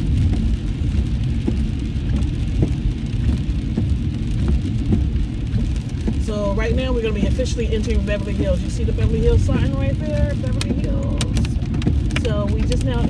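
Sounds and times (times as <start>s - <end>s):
rain hissing on car: 0.0s - 13.0s
tyres rumbling on wet road: 0.0s - 13.0s
small scattered taps: 1.4s - 6.3s, 10.2s - 13.0s.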